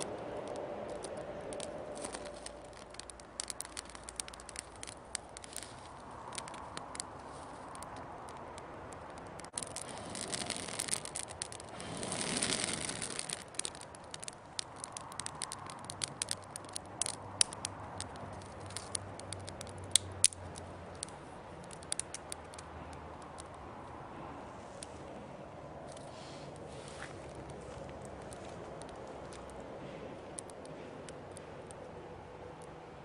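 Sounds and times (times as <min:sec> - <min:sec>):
fire rushing: 0:00.0 - 0:23.8
twig fire crackling and popping: 0:00.0 - 0:24.1, 0:25.8 - 0:33.0.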